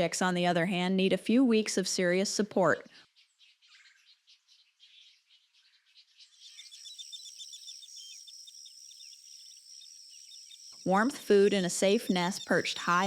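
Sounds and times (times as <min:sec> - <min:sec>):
high chirps: 0:06.2 - 0:13.0
rapid repeated chirps: 0:06.3 - 0:13.0
high insect buzz: 0:06.4 - 0:13.0.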